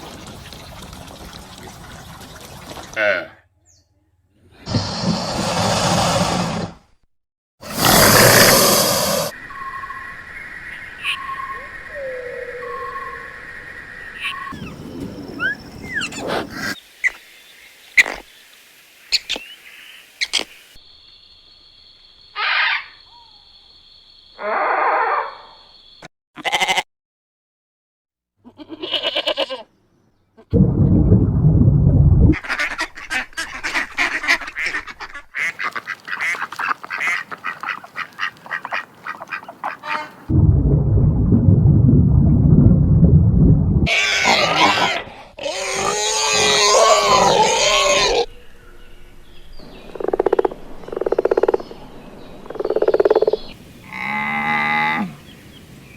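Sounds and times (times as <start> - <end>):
ducks quacking: 32.4 - 40.3
deep animal call: 43.8 - 48.3.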